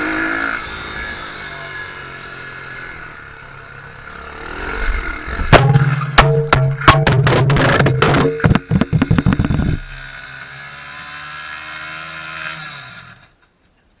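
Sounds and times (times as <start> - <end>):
motorbike engine running: 0.0 - 11.7.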